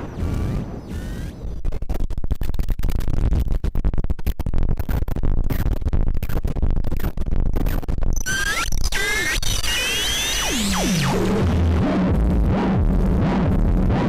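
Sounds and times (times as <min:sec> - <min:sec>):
synthesizer harsh noise crackles: 0:00.0 - 0:14.0
heavy low rumble: 0:10.6 - 0:14.0.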